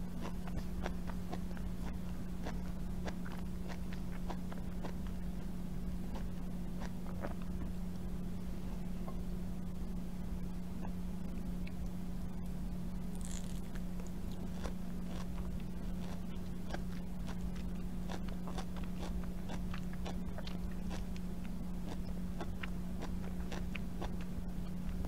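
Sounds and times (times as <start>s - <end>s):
low steady hum: 0.0s - 25.0s
chewing mango wet clicks: 0.2s - 5.3s, 13.2s - 25.0s.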